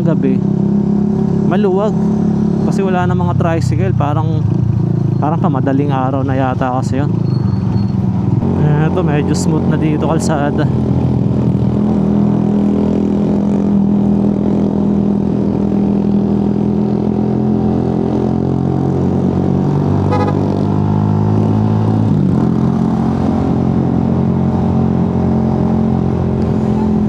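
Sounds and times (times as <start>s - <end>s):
motorcycle engine running: 10.6s - 27.0s.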